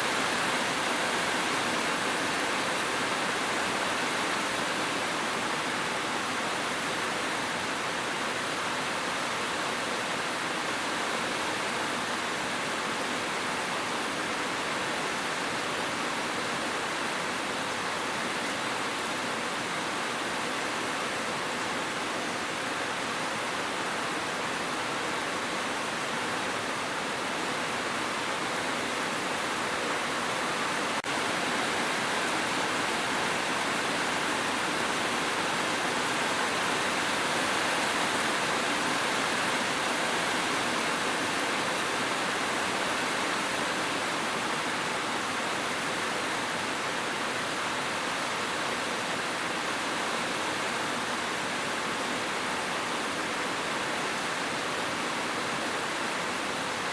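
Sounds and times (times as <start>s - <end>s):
dense rain hissing: 0.0s - 56.9s.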